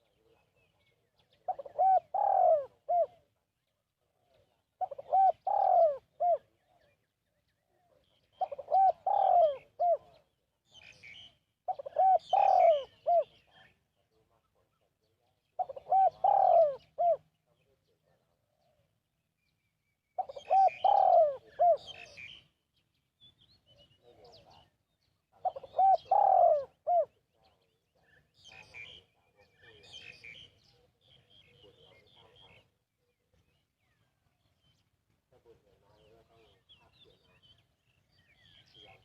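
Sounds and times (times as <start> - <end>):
small birds chirping: 0.0 - 39.0
dove cooing: 1.4 - 3.3, 4.8 - 6.8, 8.4 - 10.2, 11.7 - 13.4, 15.6 - 17.3, 20.2 - 22.4, 25.4 - 27.2.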